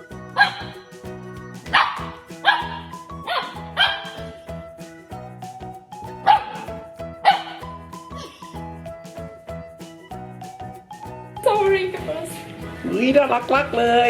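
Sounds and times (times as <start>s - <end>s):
background music: 0.0s - 14.0s
dog barking: 7.3s - 7.6s.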